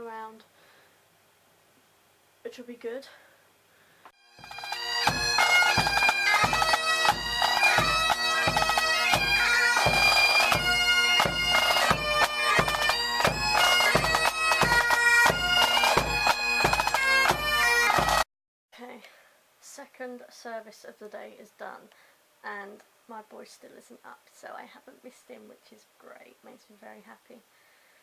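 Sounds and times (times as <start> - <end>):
bagpipes playing: 4.2 - 18.2
regular drum beat: 4.3 - 18.2.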